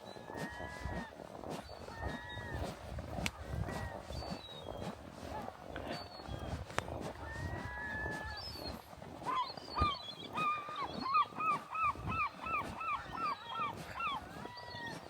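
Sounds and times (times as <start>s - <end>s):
bird calling: 7.6s - 15.0s.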